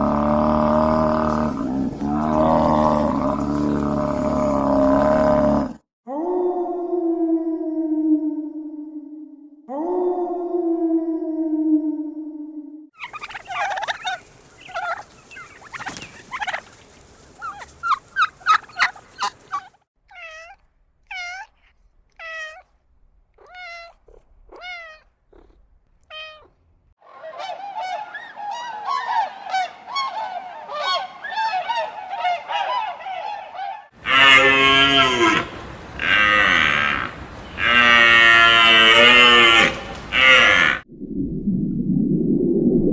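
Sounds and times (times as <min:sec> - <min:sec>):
chatter of many birds: 0:13.0 - 0:19.8, 0:27.1 - 0:38.1, 0:39.5 - 0:40.8
geese honking: 0:13.0 - 0:19.8, 0:27.1 - 0:40.8.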